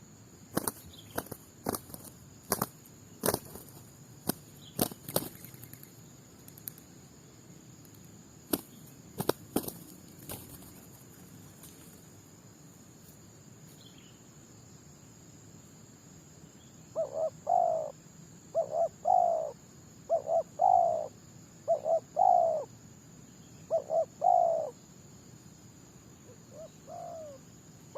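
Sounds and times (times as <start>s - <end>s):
dove cooing: 16.9s - 22.7s, 23.7s - 24.8s, 26.3s - 27.5s.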